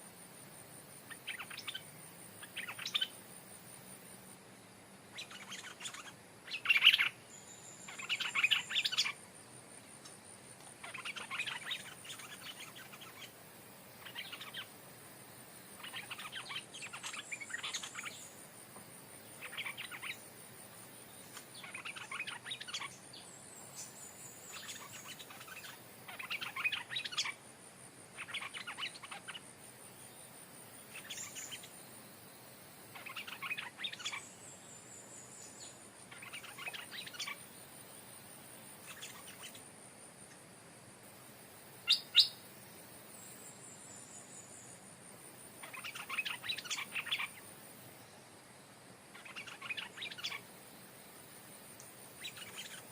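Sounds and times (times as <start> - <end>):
birds singing: 1.1 - 3.2, 5.1 - 9.2, 10.0 - 14.8, 15.4 - 18.4, 19.2 - 27.4, 28.2 - 31.8, 32.9 - 38.1, 38.8 - 39.6, 41.8 - 42.4, 45.6 - 47.4, 49.1 - 50.5, 52.1 - 52.9.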